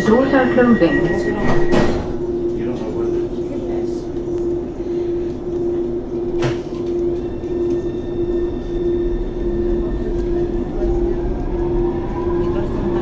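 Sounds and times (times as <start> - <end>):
faint high whine: 0.0 - 13.0
train humming: 0.0 - 13.0
train doors knocking shut: 1.4 - 2.2.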